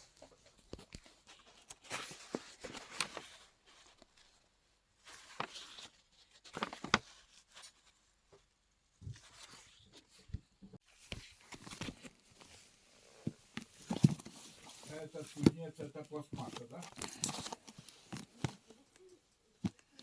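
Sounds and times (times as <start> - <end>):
small objects rustling and clicking: 13.5 - 20.0.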